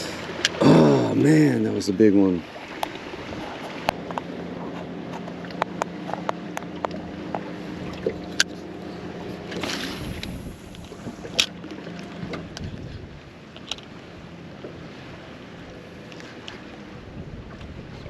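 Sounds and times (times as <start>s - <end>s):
boat motor humming: 0.0s - 18.0s
wind noise: 3.0s - 4.1s, 9.6s - 11.4s, 12.2s - 13.3s, 16.9s - 18.0s
light clicks and taps: 3.8s - 8.6s.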